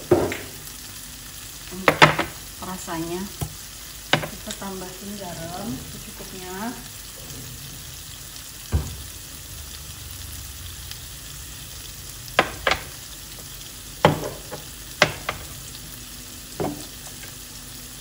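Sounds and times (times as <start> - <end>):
spice paste sizzling in a wok: 0.0 - 18.0
sharp knocks: 12.4 - 12.9, 15.0 - 15.5.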